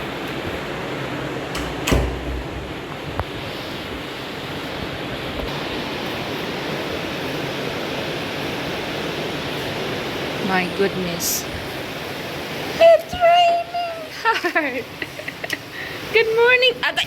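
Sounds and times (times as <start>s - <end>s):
heavy rain pouring: 0.0s - 17.0s
loud thud: 1.9s - 2.8s.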